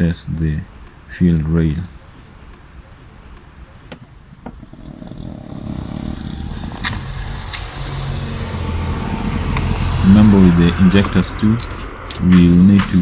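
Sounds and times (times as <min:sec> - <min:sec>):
vehicle engine running: 0:04.5 - 0:13.0
sharp clicks: 0:06.7 - 0:08.0.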